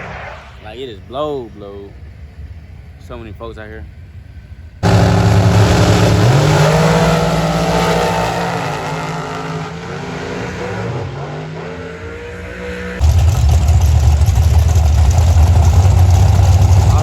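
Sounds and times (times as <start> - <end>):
drag race car accelerating: 4.8 - 17.0
steady loud engine: 4.8 - 17.0.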